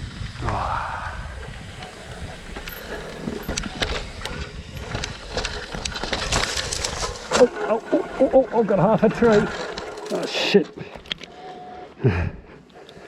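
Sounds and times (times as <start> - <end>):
wind on microphone: 0.0 - 7.2
tyres rumbling over dirt: 1.3 - 13.0
bike clattering: 1.4 - 13.0.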